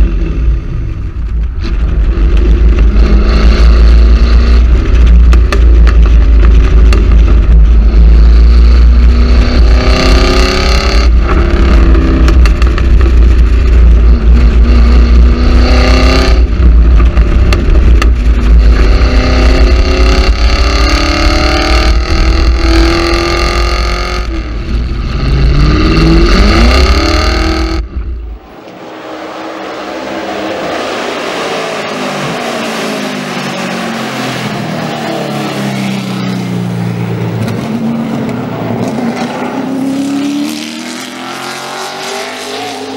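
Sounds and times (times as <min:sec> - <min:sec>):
car engine accelerating hard: 0:00.0 - 0:42.9
distant car passing by: 0:28.2 - 0:41.0.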